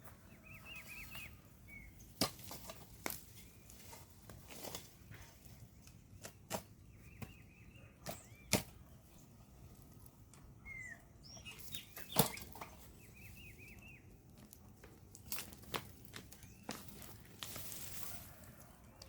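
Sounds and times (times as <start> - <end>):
birds chirping: 0.0 - 4.2, 5.0 - 19.0
spade knocking hard ground: 2.1 - 3.3, 8.0 - 8.8, 11.9 - 12.9.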